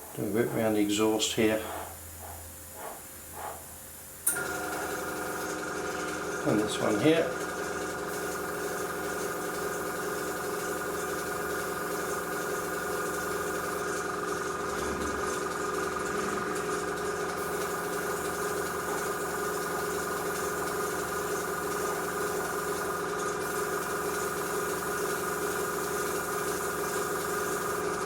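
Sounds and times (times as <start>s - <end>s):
compressor humming: 0.0s - 28.0s
airbrush hissing: 8.0s - 14.2s, 16.5s - 28.0s.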